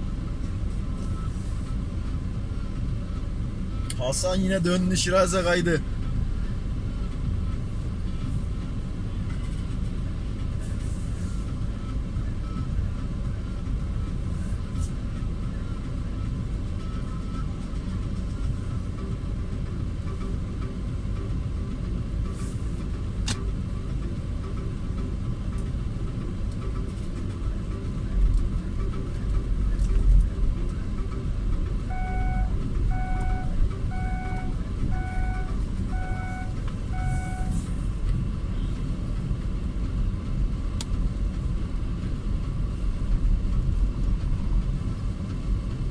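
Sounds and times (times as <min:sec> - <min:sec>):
car engine rumbling: 0:00.0 - 0:45.9
repeating beep: 0:31.9 - 0:37.5.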